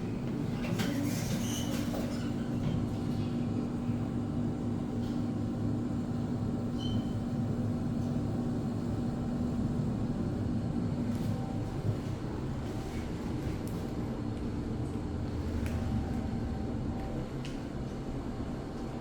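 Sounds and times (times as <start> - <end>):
elevator rumble and hum: 0.0 - 19.0.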